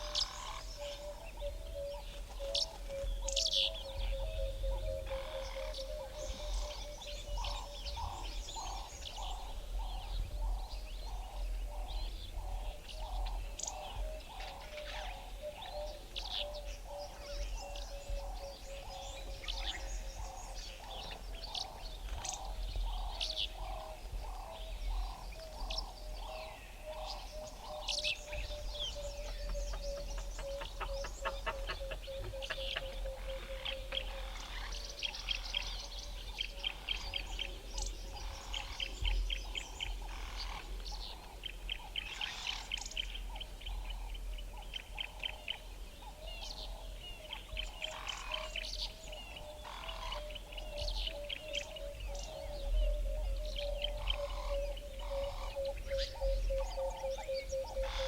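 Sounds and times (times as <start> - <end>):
birds chirping and twittering: 0.0 - 58.0.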